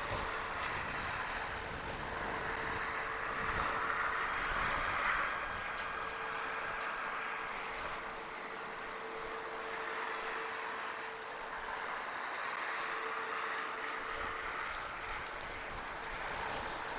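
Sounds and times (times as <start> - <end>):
storm wind rushing: 0.0 - 9.4
faint high whines: 0.0 - 16.9
river water rushing: 0.0 - 16.9
steady hum: 0.0 - 16.9.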